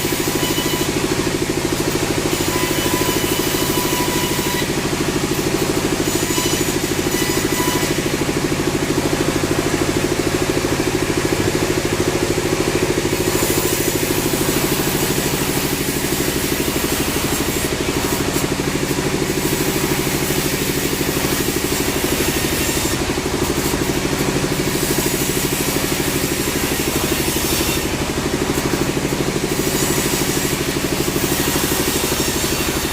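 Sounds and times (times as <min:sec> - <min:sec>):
sawmill machinery drone: 0:00.0 - 0:32.9.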